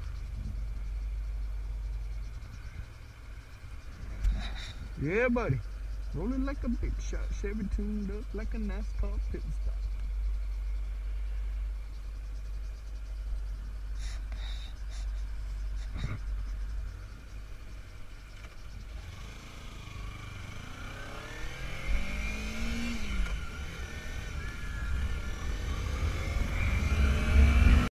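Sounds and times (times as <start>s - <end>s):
motorcycle engine revving: 17.7s - 27.9s.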